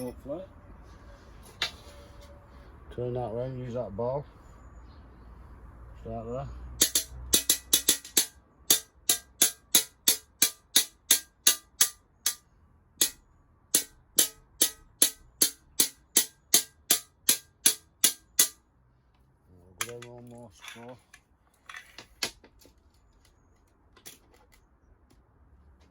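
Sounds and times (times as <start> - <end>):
glass cutter tapping glass: 6.8 - 12.4, 13.8 - 18.6.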